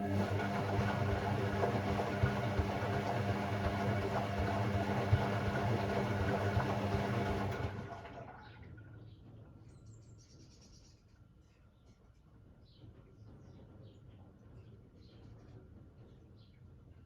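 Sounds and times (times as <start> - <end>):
washing machine drum turning: 0.0 - 8.2
water and laundry sloshing: 0.0 - 8.6.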